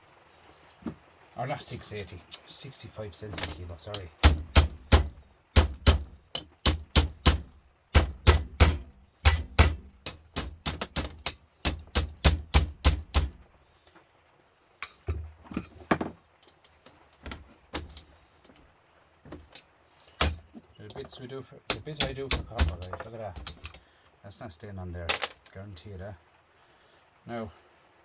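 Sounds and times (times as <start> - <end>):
scattered knocks: 3.4 - 13.3
hammer striking metal: 3.4 - 13.4, 20.2 - 20.4, 21.7 - 23.8.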